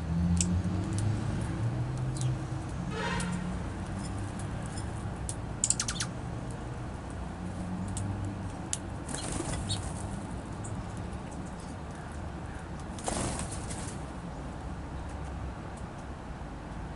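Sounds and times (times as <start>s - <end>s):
faint high bird chirps: 5.6s - 6.1s.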